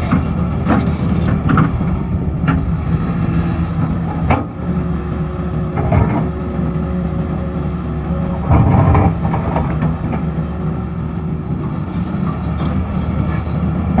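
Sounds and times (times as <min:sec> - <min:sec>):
metal knocks and clanks: 0:00.0 - 0:04.6
excavator diesel engine running: 0:00.0 - 0:14.0.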